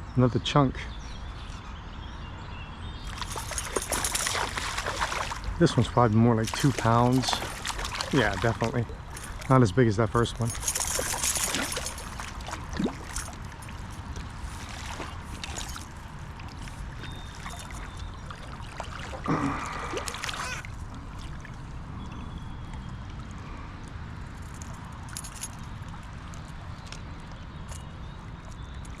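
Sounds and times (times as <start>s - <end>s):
creek water gurgling: 3.0s - 23.3s.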